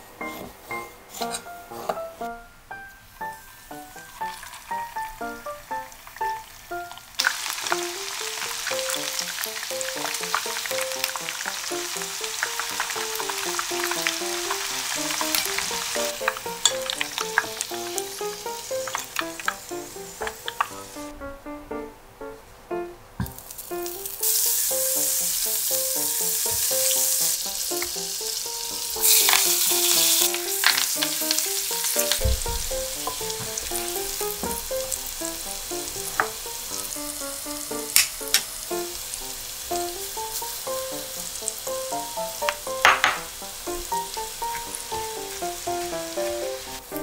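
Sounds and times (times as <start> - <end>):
spatula stirring in a pan: 0.3 - 2.0
butter sizzling in a frying pan: 3.2 - 21.1, 23.2 - 47.0.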